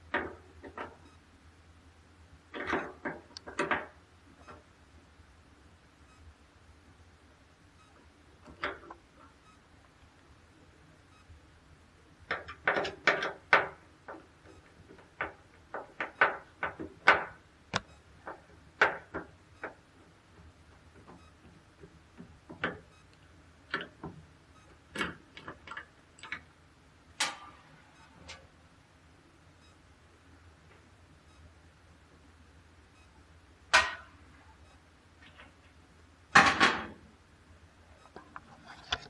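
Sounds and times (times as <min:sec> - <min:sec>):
hand tools clicking and knocking: 0:12.3 - 0:14.2.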